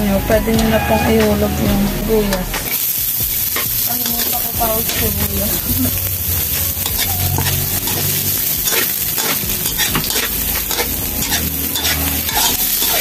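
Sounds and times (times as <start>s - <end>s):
garlic and onion sizzling in oil: 0.4s - 13.0s
spatula scraping a pan: 6.4s - 13.0s.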